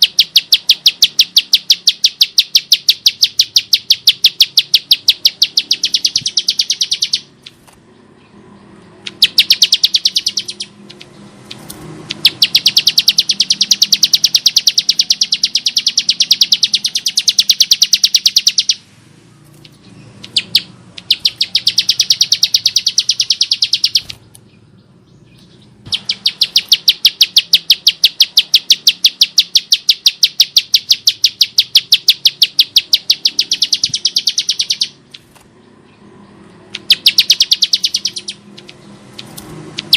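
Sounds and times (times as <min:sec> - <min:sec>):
bird singing rapid high notes: 0:00.0 - 0:39.9.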